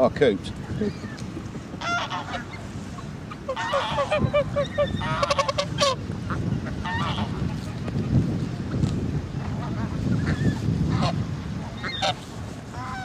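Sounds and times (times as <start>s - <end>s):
wind rumble on microphone: 0.0s - 13.0s
geese honking: 1.7s - 8.0s, 9.4s - 13.0s.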